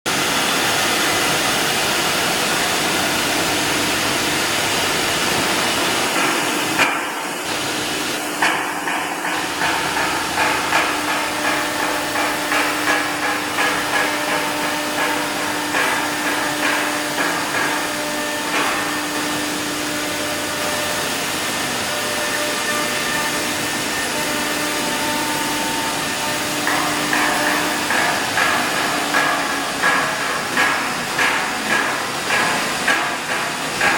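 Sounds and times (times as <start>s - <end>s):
engraving machine hissing and humming: 0.1s - 33.9s
sharp knocks: 8.4s - 19.0s, 26.5s - 33.9s.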